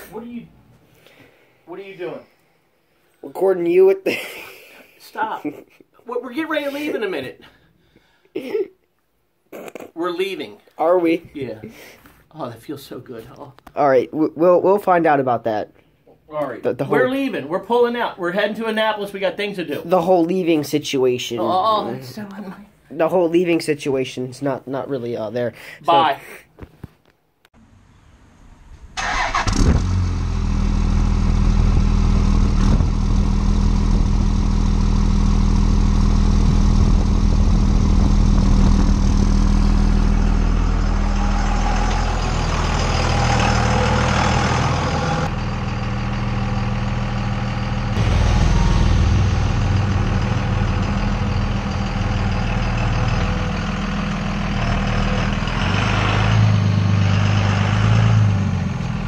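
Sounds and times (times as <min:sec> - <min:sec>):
diesel engine starting and running: 0:27.6 - 0:59.0.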